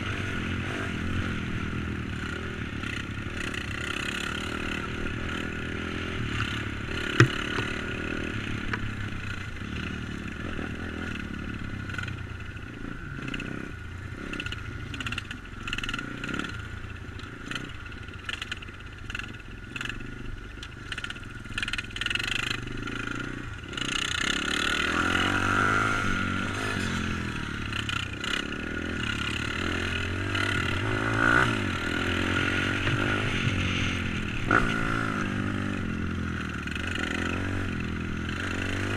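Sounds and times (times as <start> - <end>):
motorbike engine revving: 0.0 - 38.9.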